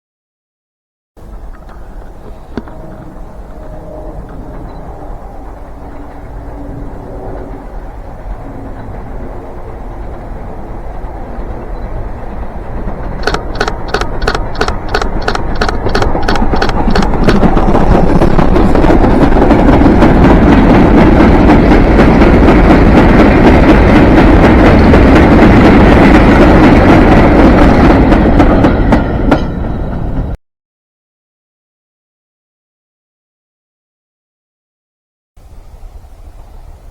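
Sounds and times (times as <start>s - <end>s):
rhythmic clicks from train wheels: 1.2s - 30.4s
train passing with loud rumble: 1.2s - 30.4s, 35.4s - 36.9s.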